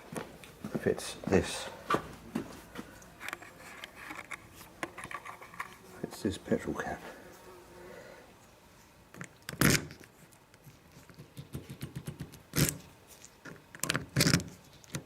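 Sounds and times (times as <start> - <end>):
key scraping in a lock: 3.2 - 5.8, 12.6 - 15.0.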